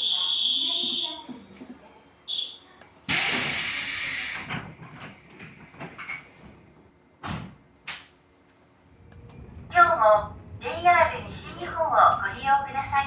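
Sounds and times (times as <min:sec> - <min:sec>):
compressed air hissing: 0:03.1 - 0:06.2.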